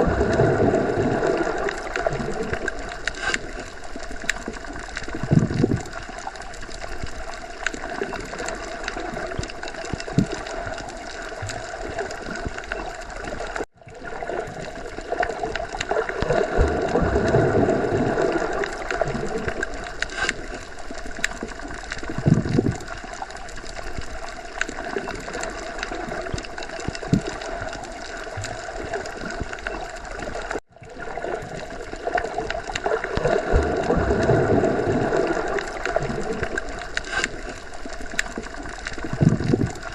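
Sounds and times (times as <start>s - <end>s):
underwater gurgling water: 0.0s - 39.9s
faint ticks: 19.5s - 22.9s, 36.4s - 39.9s.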